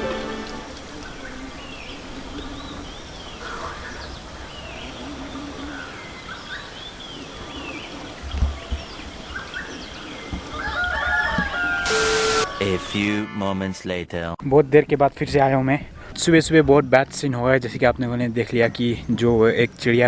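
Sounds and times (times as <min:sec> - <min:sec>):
background hiss: 0:00.0 - 0:10.6, 0:11.4 - 0:13.1
small birds chirping: 0:00.6 - 0:13.1, 0:14.4 - 0:20.0.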